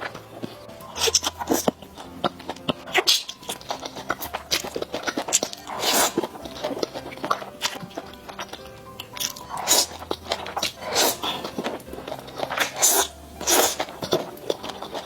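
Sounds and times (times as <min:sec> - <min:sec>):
lip smacks: 0:00.0 - 0:15.0
mouth clicks: 0:00.0 - 0:15.0
slurping: 0:00.0 - 0:15.0
wet chewing: 0:00.0 - 0:15.0.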